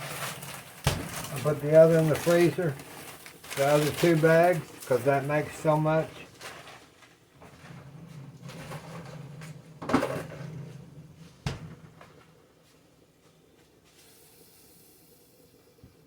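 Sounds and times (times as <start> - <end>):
knocks and rustles: 0.0 - 4.9, 6.4 - 12.4.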